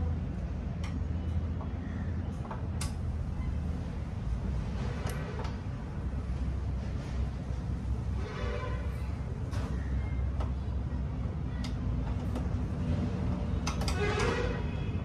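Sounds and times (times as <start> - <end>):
sharp clicks and knocks: 13.6 - 14.4.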